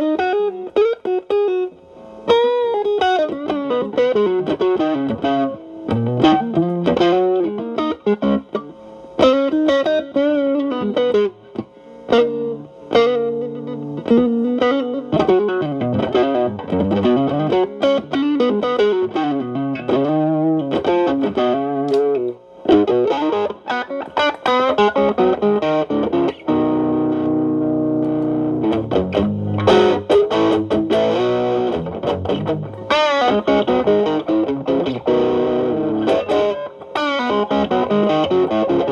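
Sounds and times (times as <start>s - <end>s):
overdriven electric guitar: 0.0s - 38.9s.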